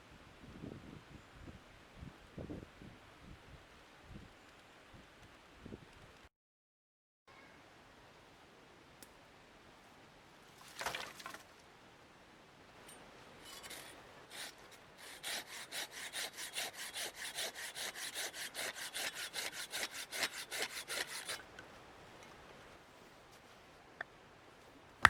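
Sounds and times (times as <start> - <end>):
hand saw cutting wood: 13.4 - 21.6.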